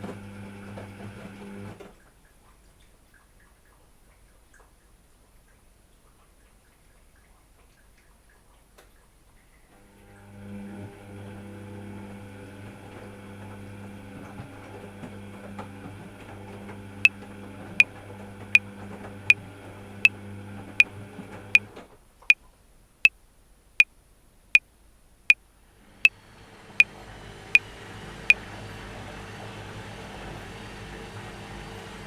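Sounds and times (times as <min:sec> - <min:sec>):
washing machine hum: 0:00.0 - 0:02.0, 0:09.8 - 0:21.8, 0:25.8 - 0:32.0.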